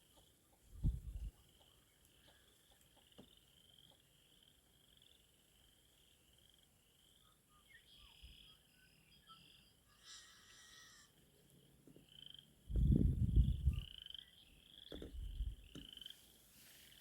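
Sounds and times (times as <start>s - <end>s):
faint bird calls: 0.0s - 5.3s, 7.1s - 12.5s
frog chorus trilling: 1.3s - 11.2s, 12.0s - 12.7s, 13.6s - 16.2s.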